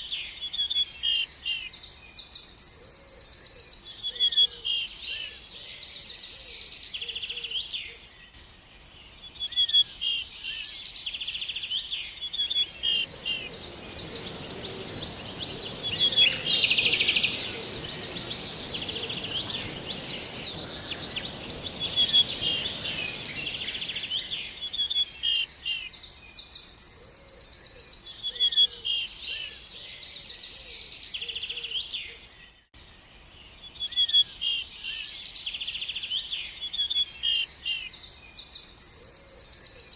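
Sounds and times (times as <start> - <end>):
songbirds chirping and trilling: 0.0 - 39.9
thin high hiss: 12.5 - 24.9
steady rushing noise: 12.6 - 24.6.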